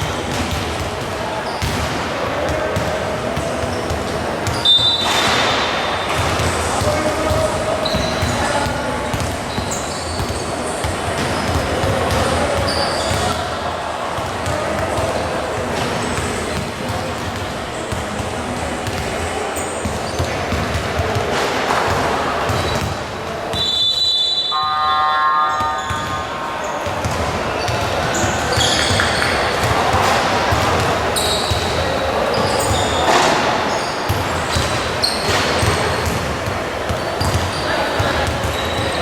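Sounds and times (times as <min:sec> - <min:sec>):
basketball bouncing: 0:00.0 - 0:13.4, 0:14.3 - 0:19.2, 0:19.8 - 0:21.3, 0:26.8 - 0:33.5, 0:34.1 - 0:38.8
crowd noise: 0:00.0 - 0:39.0
sneaker squeaks: 0:00.1 - 0:39.0
held pitched tone: 0:23.6 - 0:27.3.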